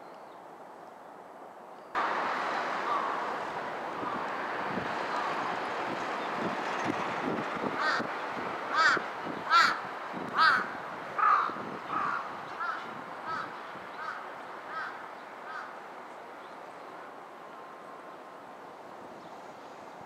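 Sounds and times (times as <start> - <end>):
steady background hiss: 0.0 - 20.0
bird harsh calls: 2.8 - 3.2, 7.7 - 9.8, 10.4 - 15.7.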